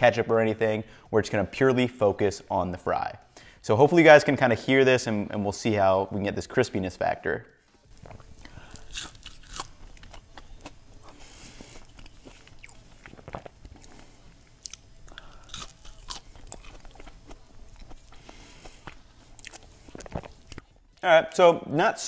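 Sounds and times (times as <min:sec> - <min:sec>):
person chewing crunchy fry: 0:07.9 - 0:21.0.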